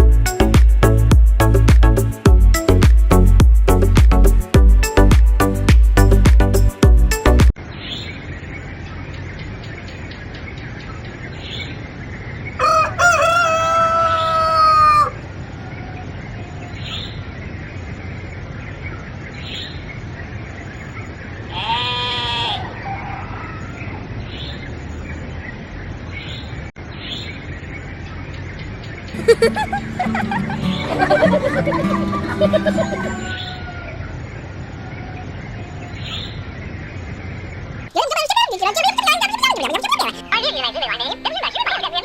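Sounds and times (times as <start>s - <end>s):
rooster crowing: 12.6s - 15.2s, 21.5s - 23.8s, 31.0s - 34.3s.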